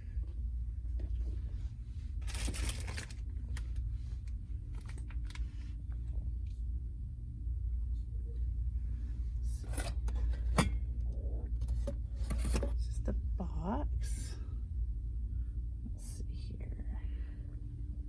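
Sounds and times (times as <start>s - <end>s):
steady low hum: 0.0s - 18.0s
paper or plastic rustle: 2.2s - 3.8s.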